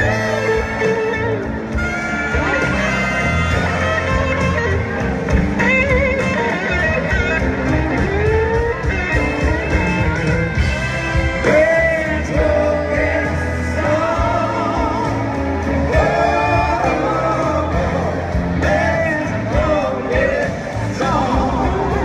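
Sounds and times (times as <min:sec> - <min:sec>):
bending lead melody: 0:00.0 - 0:22.0
live blues-rock band playing: 0:00.0 - 0:22.0.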